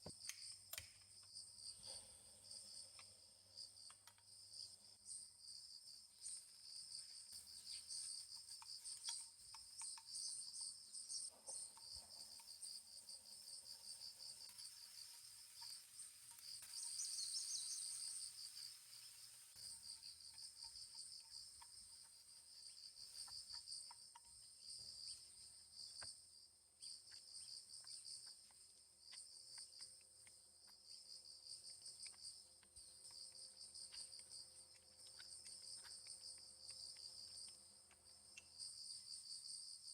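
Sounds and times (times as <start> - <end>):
crickets chirping: 0.0 - 39.9
faint clicks: 27.1 - 39.0.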